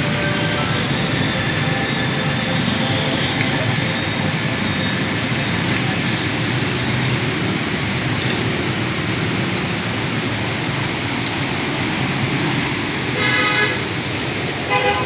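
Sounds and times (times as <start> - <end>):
rain hissing: 0.0 - 15.0
street traffic: 0.0 - 15.0
vehicle horn honk: 13.2 - 13.8, 14.7 - 15.0.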